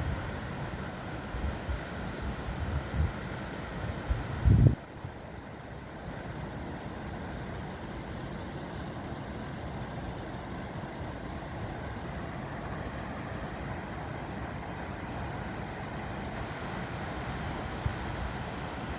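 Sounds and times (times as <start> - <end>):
river water rushing through a lock: 0.0 - 18.9.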